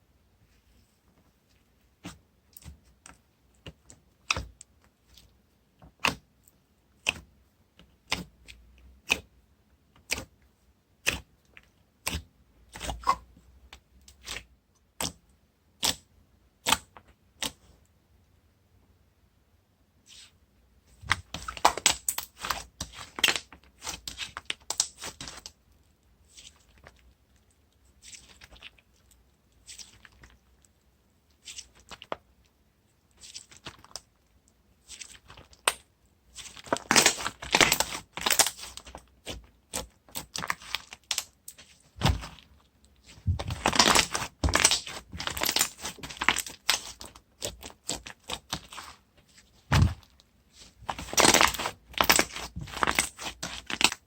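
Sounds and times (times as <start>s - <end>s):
sticky slime crackling and popping: 34.8s - 49.0s, 49.6s - 54.0s.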